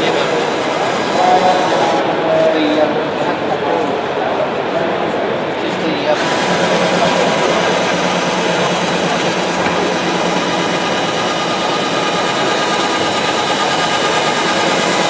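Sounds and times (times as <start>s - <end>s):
power tool whining: 0.0s - 2.0s, 6.1s - 15.0s.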